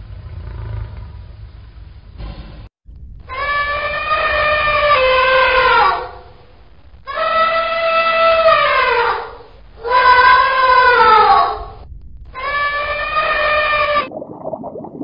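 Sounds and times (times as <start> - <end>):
elephant trumpeting: 3.4 - 6.3, 7.1 - 11.8, 12.4 - 14.1.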